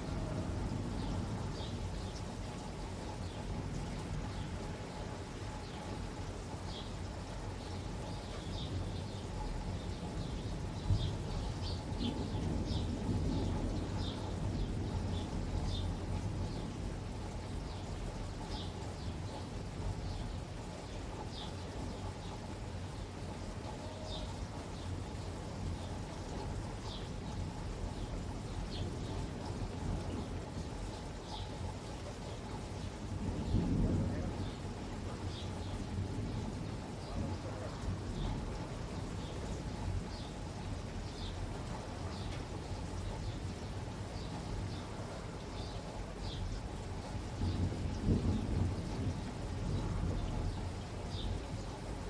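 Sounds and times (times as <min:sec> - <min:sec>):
steady rain: 0:00.0 - 0:52.0.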